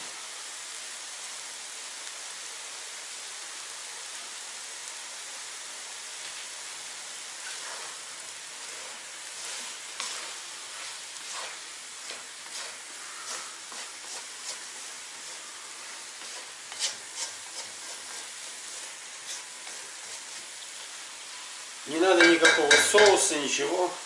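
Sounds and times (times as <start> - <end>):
meat and vegetables sizzling: 0.0 - 24.0
wooden spatula scraping pot: 7.4 - 20.6.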